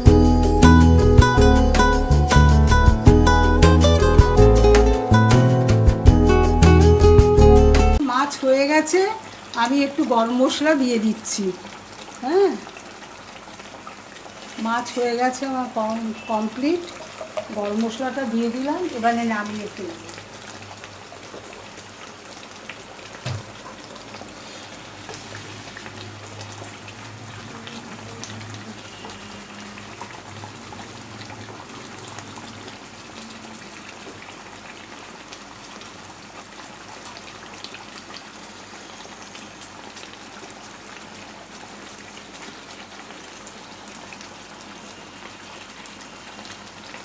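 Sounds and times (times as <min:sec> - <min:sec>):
curry sizzling in a pan: 0:00.0 - 0:47.0
single knock: 0:23.2 - 0:23.5.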